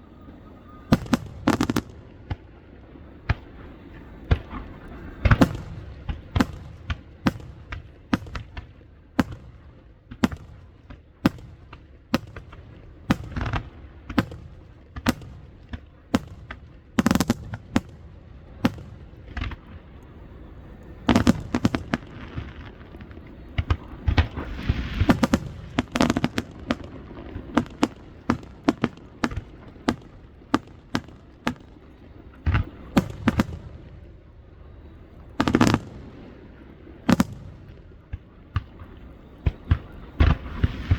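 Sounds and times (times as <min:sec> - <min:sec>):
fireworks crackle: 0:00.1 - 0:02.5, 0:03.1 - 0:40.9
fireworks bursting: 0:00.1 - 0:40.9.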